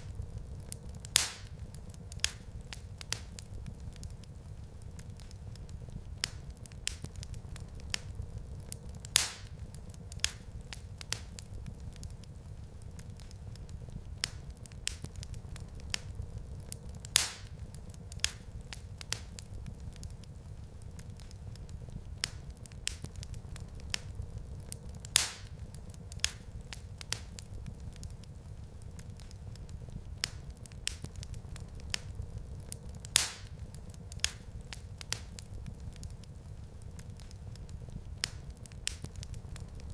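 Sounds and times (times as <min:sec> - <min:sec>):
low fire rumble: 0:00.0 - 0:39.9
wood fire crackling: 0:00.0 - 0:39.9.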